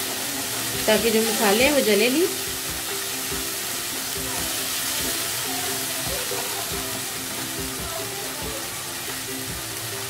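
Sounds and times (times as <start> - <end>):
background music: 0.0 - 10.0
food sizzling in a wok: 0.0 - 10.0.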